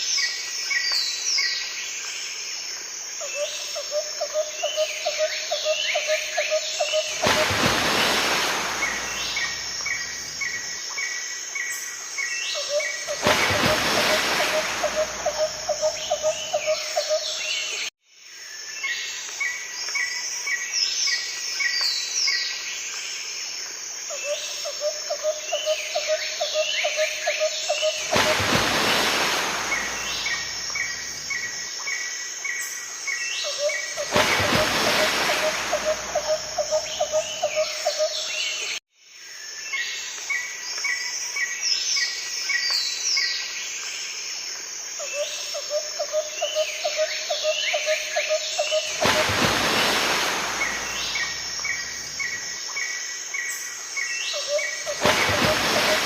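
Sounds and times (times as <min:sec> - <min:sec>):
outdoor background noise: 0:00.0 - 0:56.0.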